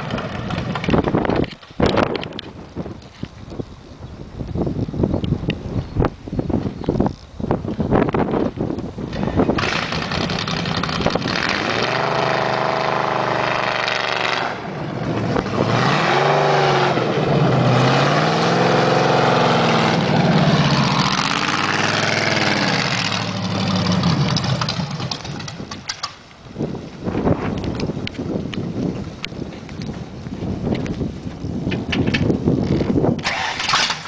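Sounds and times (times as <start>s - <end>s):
wind and road noise: 0.0s - 34.0s
car engine accelerating: 9.6s - 25.5s.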